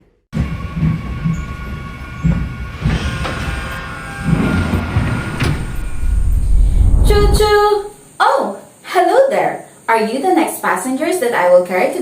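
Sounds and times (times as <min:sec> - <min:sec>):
train running along track: 0:00.4 - 0:06.2.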